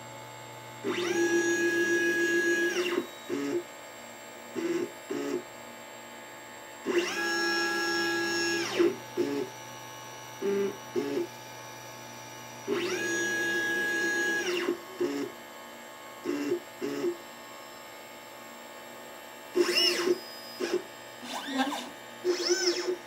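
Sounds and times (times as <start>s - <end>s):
stepper motors whining: 19.6s - 23.0s.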